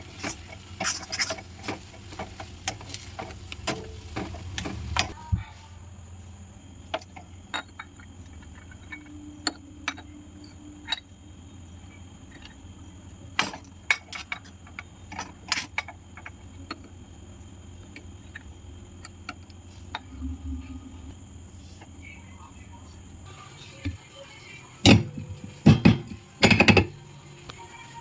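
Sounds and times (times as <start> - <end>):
utensils and dishes clinking: 0.0 - 5.2, 24.8 - 27.0
steady low hum: 15.8 - 25.9.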